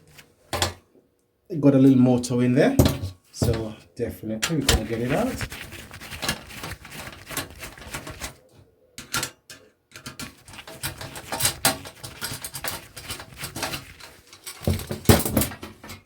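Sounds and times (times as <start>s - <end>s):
plastic fan parts clicking and snapping: 9.0s - 16.0s.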